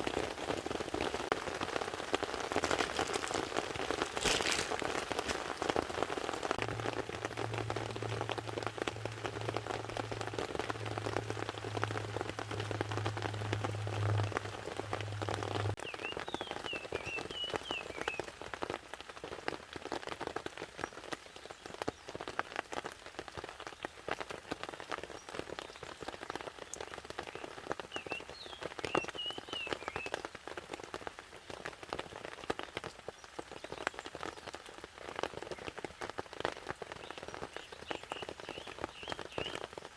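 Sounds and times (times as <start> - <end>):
rain pattering on a tarp: 0.0 - 39.9
low steady hum: 6.6 - 15.8.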